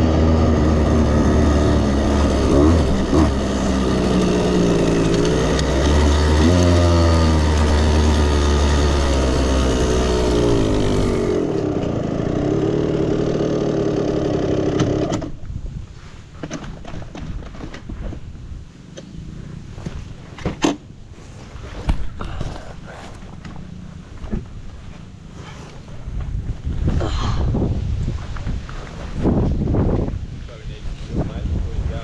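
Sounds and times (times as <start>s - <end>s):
dirt bike engine revving: 0.0s - 15.4s.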